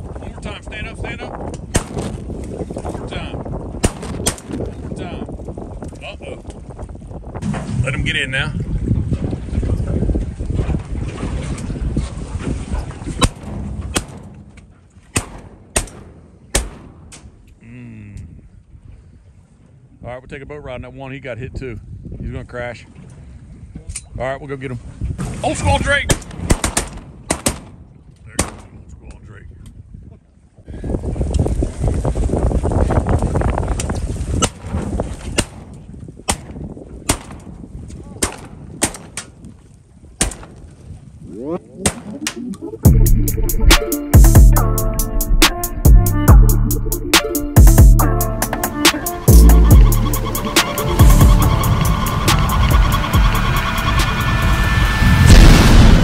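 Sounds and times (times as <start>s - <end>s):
wind rush: 0.0s - 14.1s, 30.7s - 38.8s, 49.2s - 56.0s
shotgun shots: 1.7s - 2.2s, 3.8s - 4.6s, 13.2s - 14.4s, 15.1s - 17.2s, 26.1s - 27.8s
boat noise: 7.0s - 18.4s, 40.6s - 56.0s.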